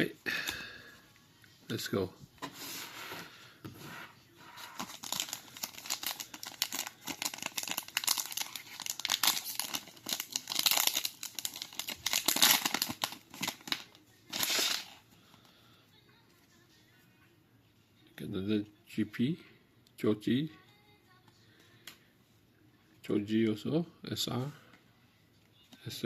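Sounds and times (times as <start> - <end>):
foil wrapper tearing and crinkling: 4.7 - 15.0.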